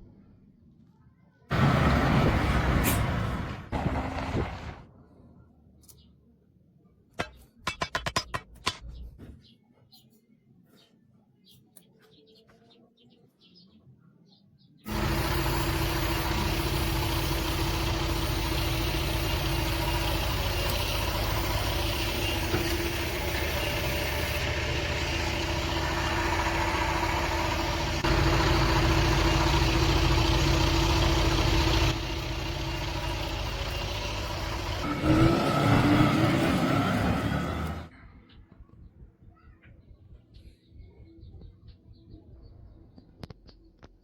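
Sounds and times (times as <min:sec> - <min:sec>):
van engine running: 0:01.5 - 0:05.0, 0:14.9 - 0:37.9.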